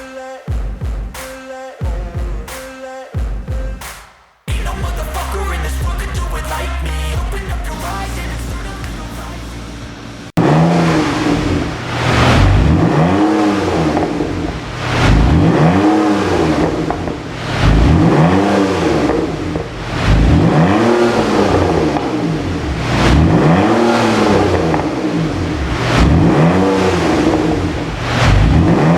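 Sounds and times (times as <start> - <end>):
music: 0.0 - 9.8
car engine revving: 4.5 - 28.9.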